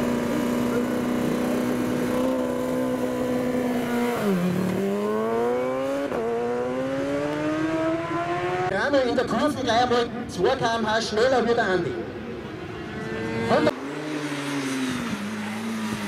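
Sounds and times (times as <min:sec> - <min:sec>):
superbike engine revving: 0:00.0 - 0:08.7, 0:13.0 - 0:16.0.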